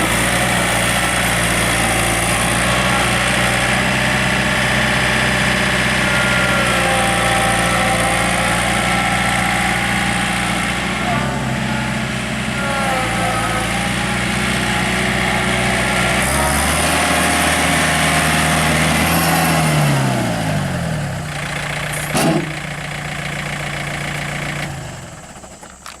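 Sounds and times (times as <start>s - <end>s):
tractor diesel engine running: 0.0s - 26.0s
sharp clunk: 22.0s - 22.6s.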